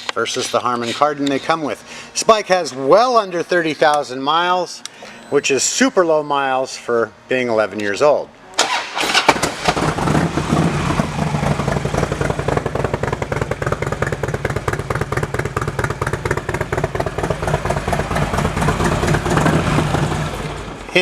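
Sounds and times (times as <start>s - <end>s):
motorcycle engine idling: 9.6s - 20.8s.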